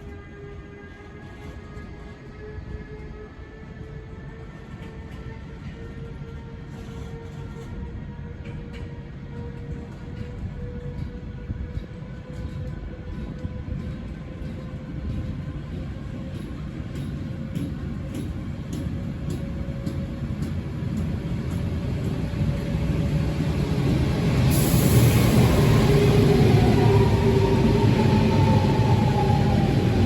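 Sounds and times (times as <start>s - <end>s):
train rumbling: 0.0s - 30.0s
loud hiss: 24.5s - 25.6s.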